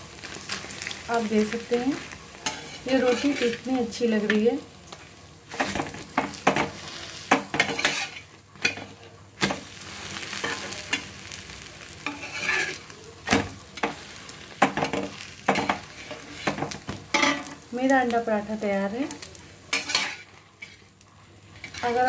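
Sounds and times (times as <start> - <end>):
flatbread sizzling in oil: 0.0 - 22.0
steel spatula scraping a pan: 2.0 - 4.4, 5.5 - 11.1, 12.0 - 12.9, 14.8 - 17.6, 19.2 - 22.0.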